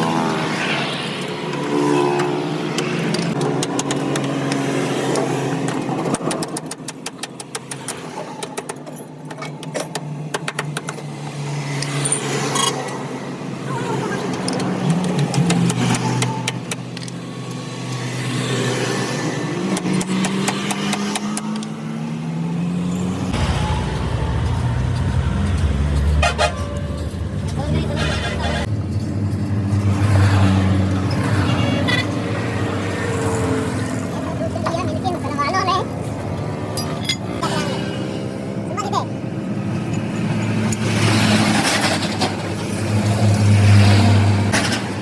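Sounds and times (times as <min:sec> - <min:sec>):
vehicle engines passing: 0:00.0 - 0:06.3, 0:11.0 - 0:45.0
deep engine hum: 0:23.3 - 0:29.9.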